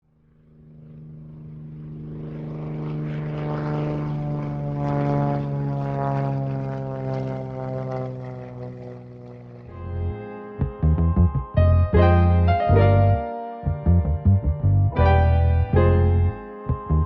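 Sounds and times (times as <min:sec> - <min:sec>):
propeller aircraft engine droning: 0:00.0 - 0:17.0.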